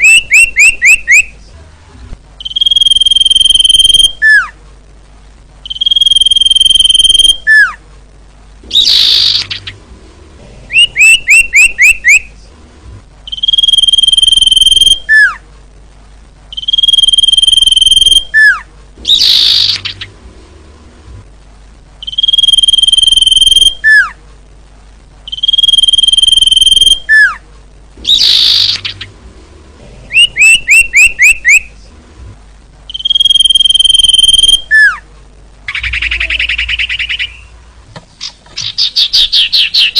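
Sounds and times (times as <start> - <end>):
bird whistling calls: 0.0 - 1.3, 2.4 - 4.5, 5.6 - 7.8, 8.7 - 9.8, 10.7 - 12.3, 13.3 - 15.4, 16.5 - 20.1, 22.0 - 24.2, 25.3 - 27.4, 28.0 - 29.1, 30.1 - 31.7, 32.9 - 35.0, 35.7 - 37.5.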